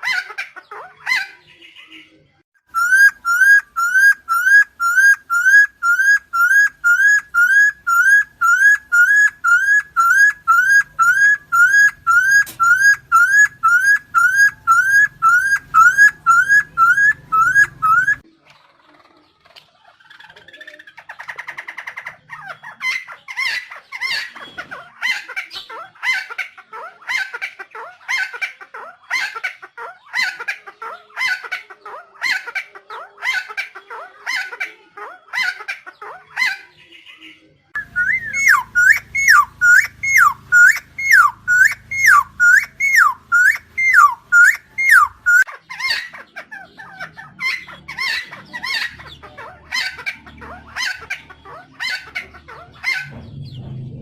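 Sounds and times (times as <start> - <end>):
bird calling harsh notes: 2.7 - 18.2, 37.8 - 46.2
bird whistling rising and falling: 2.7 - 18.2, 37.8 - 45.5.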